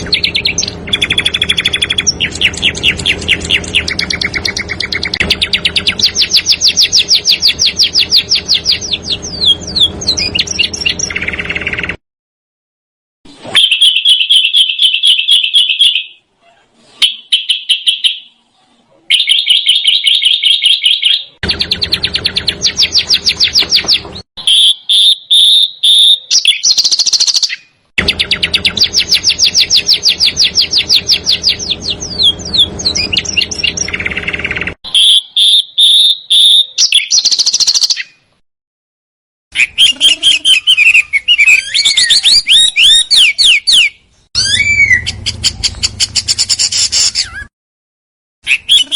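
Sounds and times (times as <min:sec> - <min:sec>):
low hum: 0:00.0 - 0:12.0, 0:28.0 - 0:34.8, 0:44.4 - 0:47.0
songbirds trilling: 0:00.0 - 0:12.0, 0:19.1 - 0:38.2, 0:39.5 - 0:47.5, 0:48.4 - 0:48.9.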